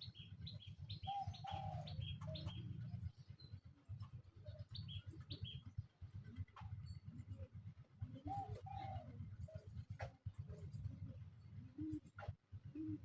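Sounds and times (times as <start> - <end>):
birds chirping: 0.0 - 3.6.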